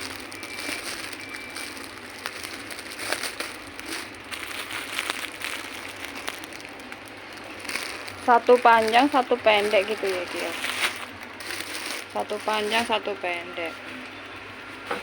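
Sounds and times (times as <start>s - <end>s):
sharp clicks and crackles: 0.0s - 12.4s
packaging rustling: 0.0s - 13.2s.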